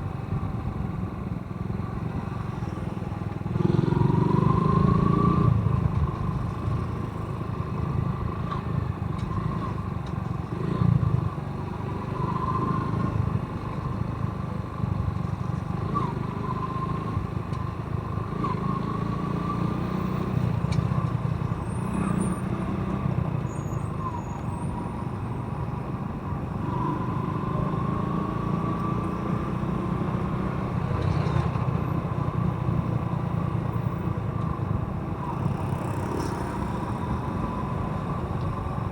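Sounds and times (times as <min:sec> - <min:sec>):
motorcycle engine accelerating: 0:03.4 - 0:07.3.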